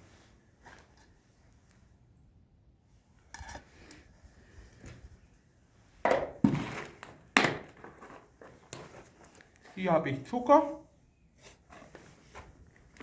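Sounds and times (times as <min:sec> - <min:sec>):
rustling and knocking of packages: 0:06.1 - 0:09.7.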